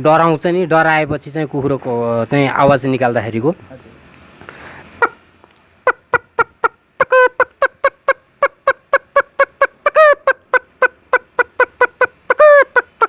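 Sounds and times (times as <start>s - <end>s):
man imitating chicken clucks: 5.0s - 5.2s, 5.8s - 13.0s.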